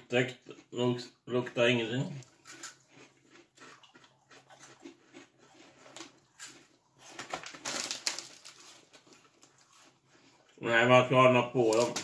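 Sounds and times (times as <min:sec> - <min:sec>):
crunchy chewing: 0:02.0 - 0:10.7.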